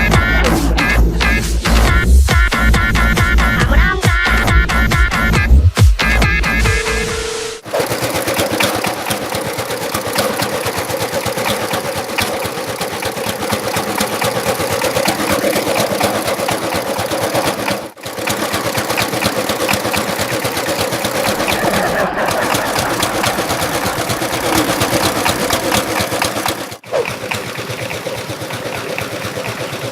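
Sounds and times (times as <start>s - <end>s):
small engine running flat out: 7.6s - 29.9s.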